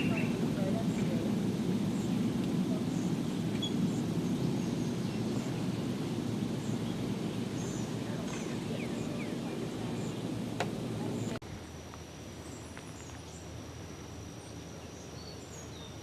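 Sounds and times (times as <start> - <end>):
steady low rumble: 0.0 - 14.8
faint bird chirps: 1.9 - 5.9.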